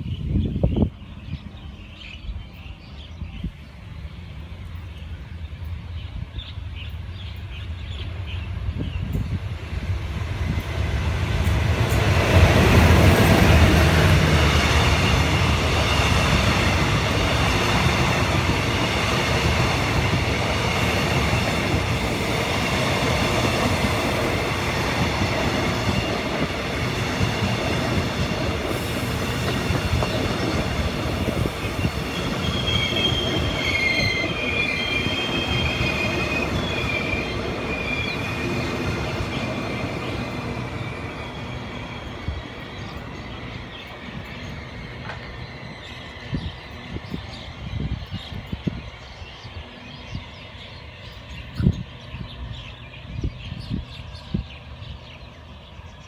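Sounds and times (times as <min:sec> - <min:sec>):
diesel locomotive engine rumble: 0:00.0 - 0:56.0
train wheels on rail: 0:00.0 - 0:56.0
wheels squealing: 0:28.7 - 0:47.6.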